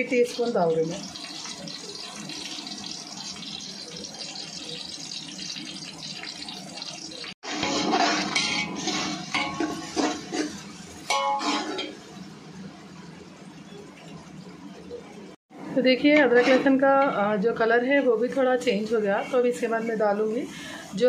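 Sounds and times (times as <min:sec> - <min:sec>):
onions sizzling in hot oil: 0:00.0 - 0:12.4
metal skimmer scraping a pot: 0:07.4 - 0:11.9, 0:16.3 - 0:16.9.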